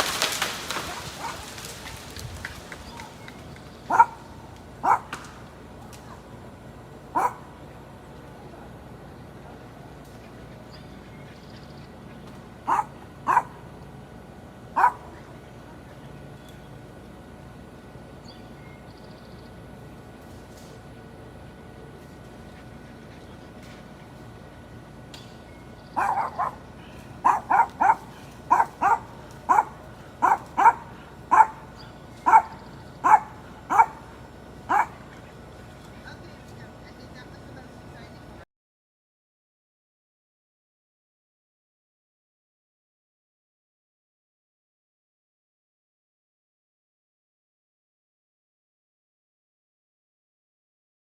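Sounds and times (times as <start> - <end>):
dog barking: 1.2 - 1.5, 3.9 - 5.2, 7.1 - 7.6, 12.7 - 13.6, 14.8 - 15.2, 26.0 - 34.1, 34.7 - 35.0.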